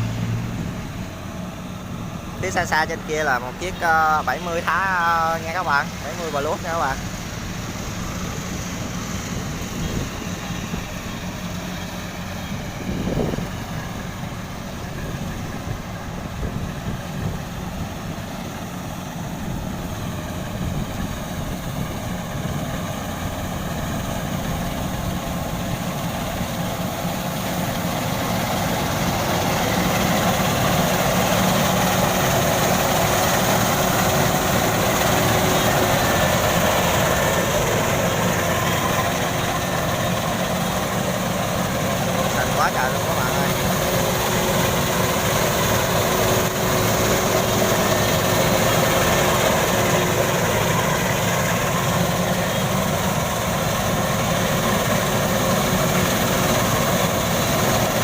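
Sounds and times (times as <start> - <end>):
combine harvester engines running: 0.0 - 58.0.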